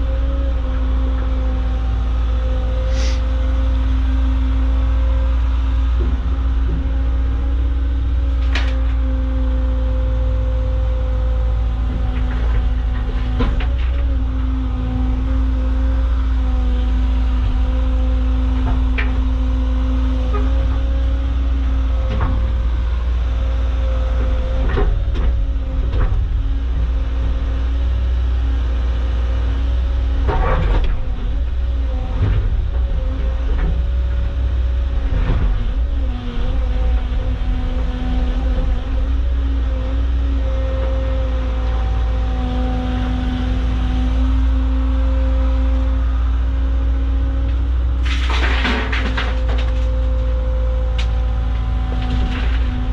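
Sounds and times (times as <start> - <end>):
excavator diesel engine running: 0.0 - 52.9
digging knocks and clunks: 11.7 - 16.6, 30.1 - 39.9, 47.5 - 52.9.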